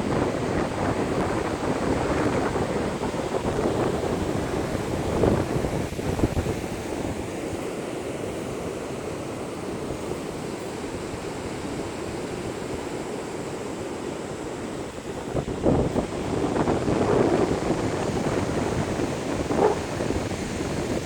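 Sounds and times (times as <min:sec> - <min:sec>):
wind buffeting microphone: 0:00.0 - 0:07.3, 0:15.0 - 0:21.0
surf rushing: 0:16.2 - 0:21.0.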